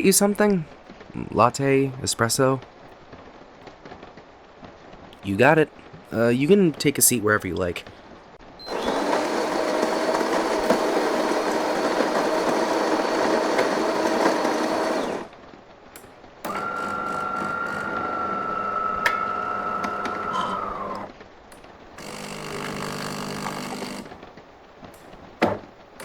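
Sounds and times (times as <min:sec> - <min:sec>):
electric coffee grinder running: 0:08.6 - 0:15.3, 0:16.5 - 0:21.1, 0:22.0 - 0:24.2
espresso machine whine: 0:08.6 - 0:15.3, 0:16.5 - 0:21.1, 0:22.0 - 0:24.2.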